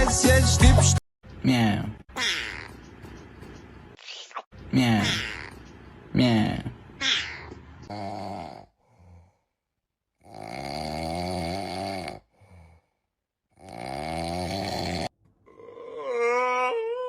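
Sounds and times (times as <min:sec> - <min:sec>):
person snoring: 0:07.9 - 0:09.5, 0:10.2 - 0:16.8.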